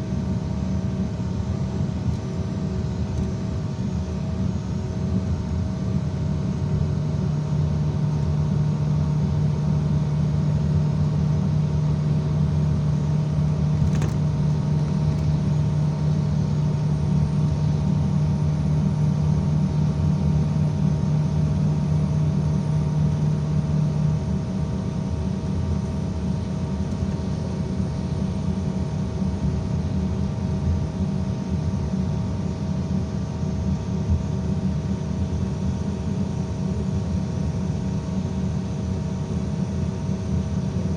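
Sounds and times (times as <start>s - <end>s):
bus engine drone: 0.0s - 40.9s
strong low hum: 12.7s - 18.6s.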